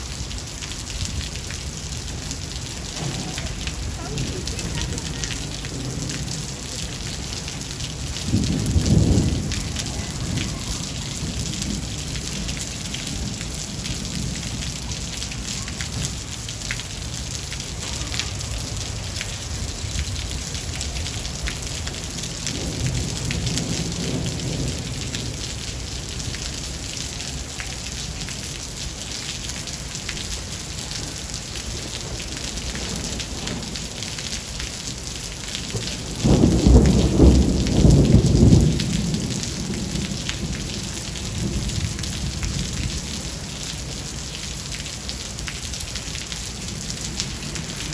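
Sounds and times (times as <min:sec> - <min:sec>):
thunder rumbling: 0:00.0 - 0:27.4, 0:35.6 - 0:44.0, 0:46.4 - 0:47.9
rain pattering and hissing: 0:00.0 - 0:47.9.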